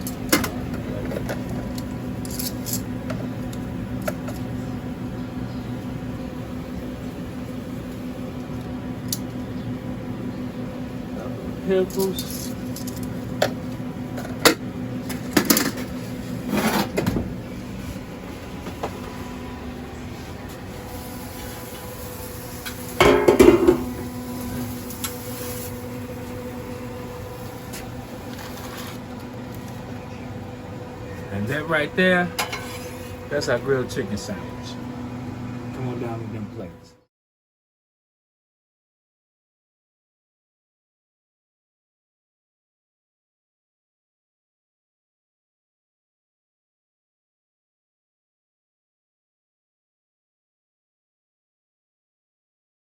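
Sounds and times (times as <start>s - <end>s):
low electrical hum: 0.0s - 37.0s
clatter of dishes: 23.0s - 24.0s, 32.4s - 32.9s.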